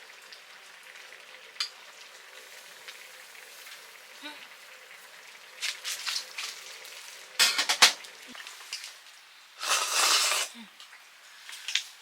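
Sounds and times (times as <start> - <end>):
food sizzling: 0.0 - 12.0
utensils clinking on cookware: 7.4 - 8.0.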